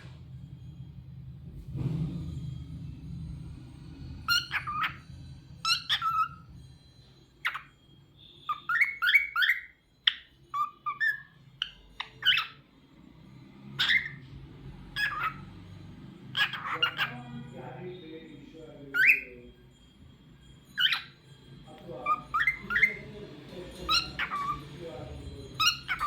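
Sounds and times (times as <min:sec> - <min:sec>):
cockatiel whistling and chirping: 0:04.2 - 0:12.7, 0:13.7 - 0:17.6, 0:18.4 - 0:19.8, 0:20.6 - 0:26.0.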